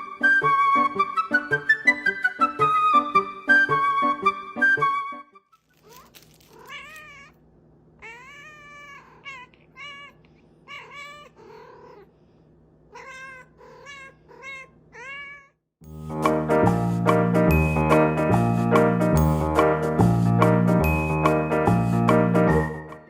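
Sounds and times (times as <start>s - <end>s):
cat meowing: 5.7s - 7.4s, 8.0s - 12.1s, 12.9s - 15.6s.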